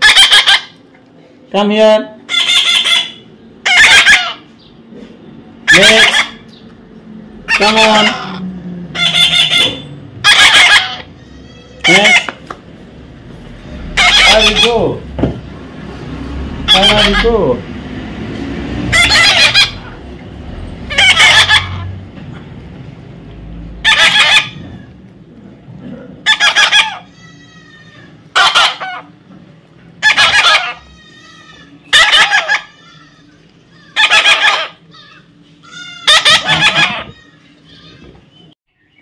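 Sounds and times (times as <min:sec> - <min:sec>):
parrot squawking: 0:00.0 - 0:00.8, 0:02.2 - 0:04.6, 0:05.6 - 0:06.6, 0:07.4 - 0:12.5, 0:13.5 - 0:15.1, 0:16.6 - 0:17.6, 0:18.8 - 0:22.0, 0:23.7 - 0:25.0, 0:26.2 - 0:29.2, 0:30.0 - 0:38.2.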